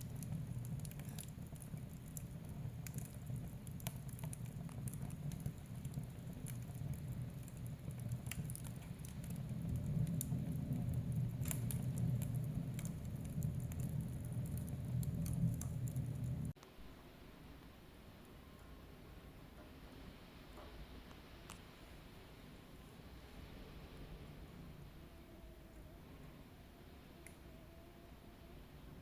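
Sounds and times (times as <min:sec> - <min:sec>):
wood fire crackling and popping: 0:00.0 - 0:16.8
low rumble of flames: 0:00.0 - 0:29.0.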